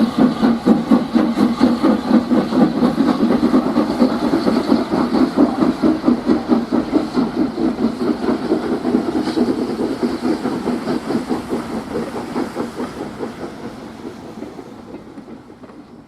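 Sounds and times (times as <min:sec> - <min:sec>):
steam locomotive chuffing: 0:00.0 - 0:16.0.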